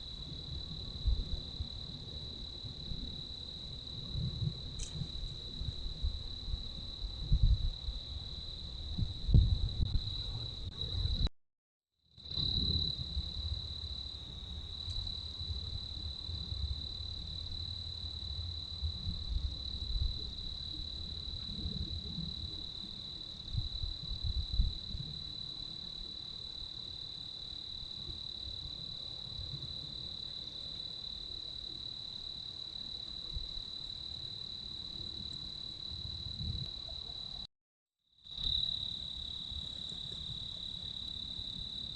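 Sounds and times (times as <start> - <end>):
wind rumbling on microphone: 0.0 - 11.3, 12.2 - 26.9, 32.6 - 37.4.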